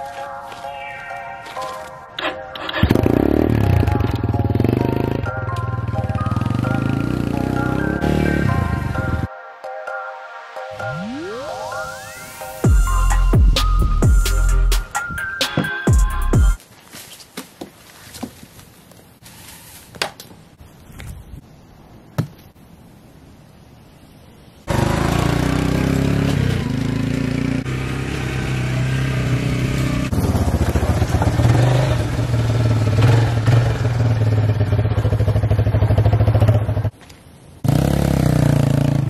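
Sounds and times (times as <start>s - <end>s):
dirt bike engine running: 2.8s - 4.9s, 24.7s - 36.9s.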